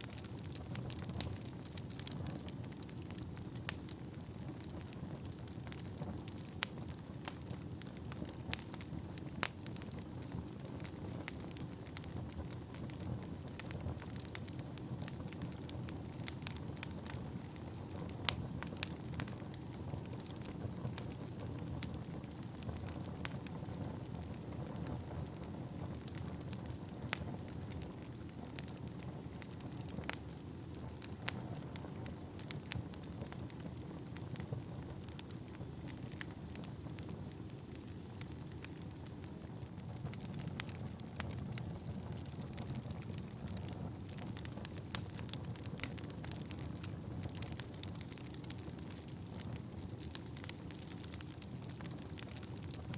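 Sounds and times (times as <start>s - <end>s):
logs crackling and popping: 0.0s - 52.9s
faint high whistle: 33.8s - 39.8s.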